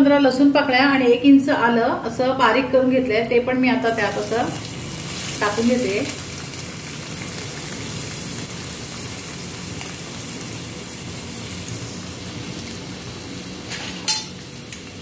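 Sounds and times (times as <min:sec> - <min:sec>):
spices sizzling in hot oil: 0:03.9 - 0:15.0.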